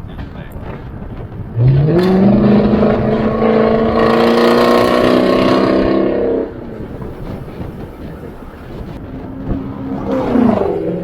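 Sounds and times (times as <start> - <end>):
car engine revving loudly: 1.6 - 6.6.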